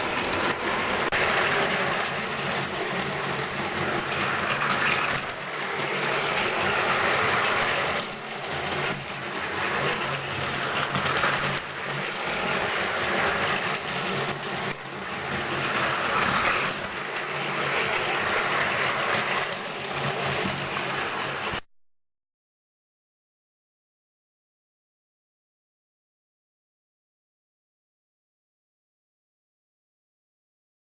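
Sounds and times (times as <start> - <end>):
toy train motor whirring: 0.0 - 21.6
toy train wheels rattling: 0.0 - 21.6.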